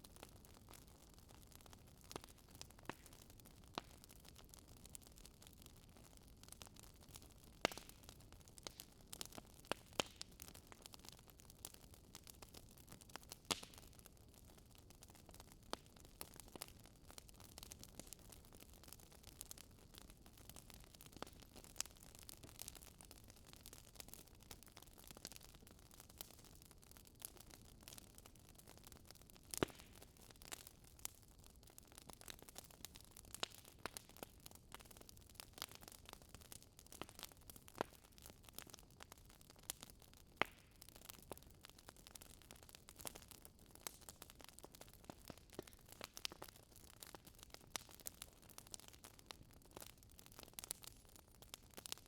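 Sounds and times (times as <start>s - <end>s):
wood fire crackling and popping: 0.1s - 52.0s.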